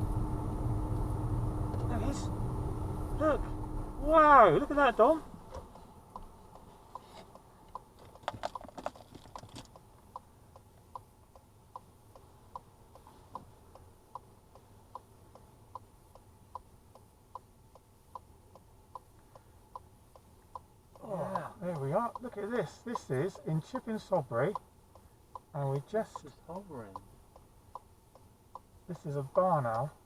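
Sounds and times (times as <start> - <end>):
low rumble: 0.0 - 6.6
car indicator relay ticking: 4.0 - 8.6, 9.3 - 30.0
knocks and clicks: 7.7 - 9.9.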